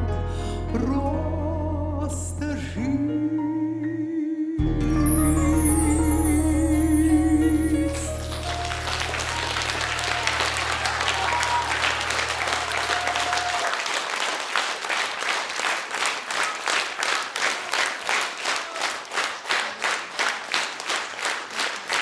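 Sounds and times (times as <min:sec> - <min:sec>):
low bass note: 0:04.6 - 0:11.9
final chord of song: 0:04.6 - 0:13.2
audience applause: 0:08.0 - 0:22.0
rhythmic clapping in unison: 0:08.0 - 0:22.0.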